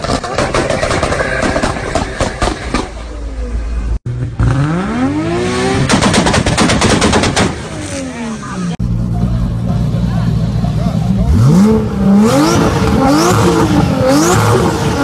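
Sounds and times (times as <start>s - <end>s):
exhaust pops and bangs: 0.0s - 3.1s, 5.8s - 7.7s
car engine revving: 0.0s - 15.0s.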